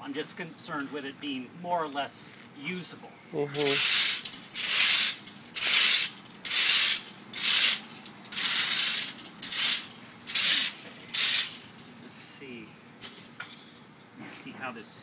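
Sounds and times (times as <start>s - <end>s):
broom sweeping sand over bottles: 3.6s - 11.7s.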